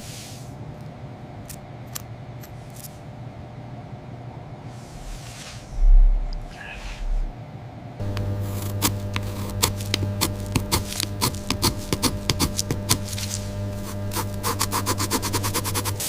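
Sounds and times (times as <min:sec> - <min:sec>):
power tool motor humming: 0:08.0 - 0:16.0.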